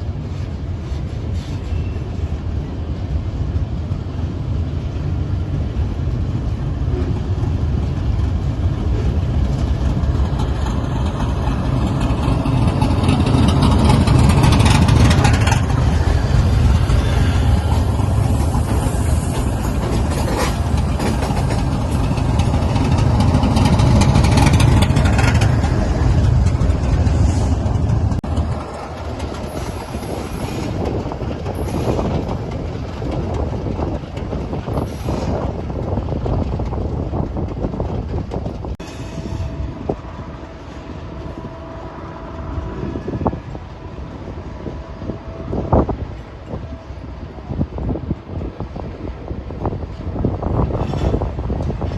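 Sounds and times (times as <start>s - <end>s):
locomotive engine drone: 0.0s - 51.9s
train wheels clattering over rails: 6.2s - 40.0s.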